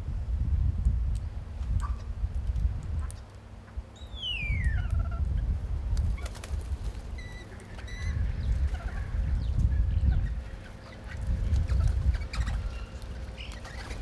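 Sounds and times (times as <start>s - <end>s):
bird whistle: 4.0s - 4.9s, 7.2s - 8.2s.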